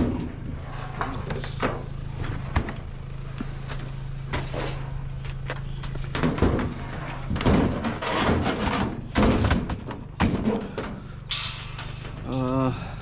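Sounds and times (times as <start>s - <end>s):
vehicle engine idling: 0.0s - 8.0s, 8.9s - 13.0s
loud thumps and clunks: 5.3s - 11.0s.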